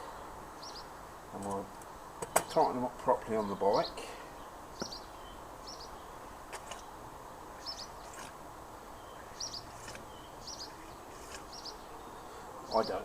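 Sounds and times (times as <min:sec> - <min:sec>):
steady background noise: 0:00.0 - 0:13.0
small bird chirping: 0:00.6 - 0:00.9, 0:03.4 - 0:13.0.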